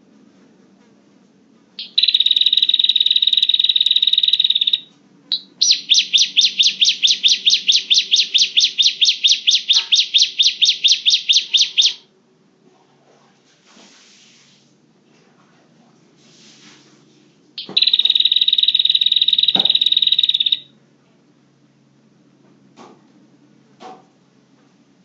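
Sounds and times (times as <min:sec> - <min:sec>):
bird sharp repeated notes: 0:01.8 - 0:12.0, 0:17.6 - 0:20.7.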